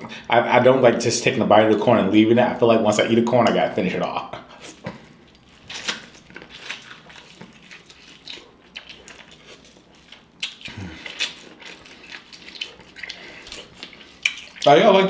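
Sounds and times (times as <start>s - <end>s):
chewing corn on the cob: 4.5s - 15.0s
wet mouth clicks: 4.6s - 14.7s.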